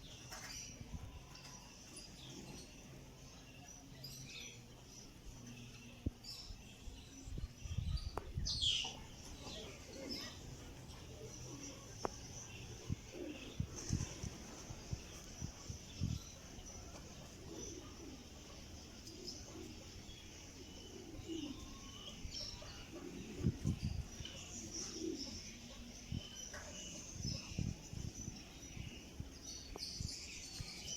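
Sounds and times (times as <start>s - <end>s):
birds cooing: 8.6s - 30.9s.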